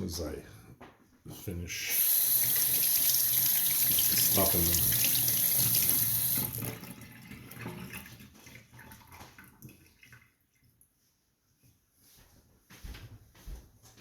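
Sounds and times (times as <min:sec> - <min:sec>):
tap running into a sink: 0:02.0 - 0:06.9.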